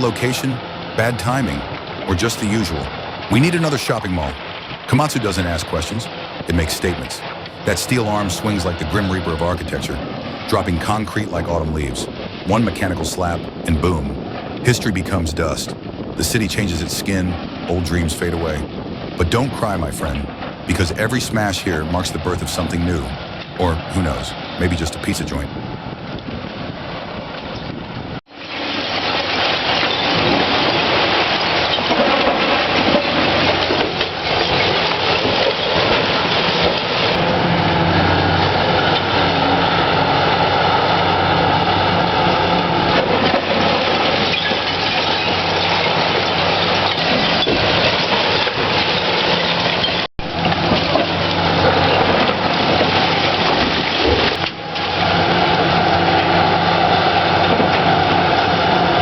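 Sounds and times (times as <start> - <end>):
demolition debris crunching: 0.0 - 59.0
excavator diesel engine: 30.6 - 59.0.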